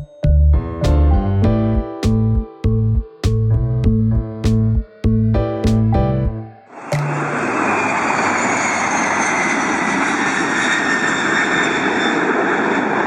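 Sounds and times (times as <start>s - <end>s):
high whine: 2.7s - 12.5s
jet engine rushing: 6.7s - 13.0s.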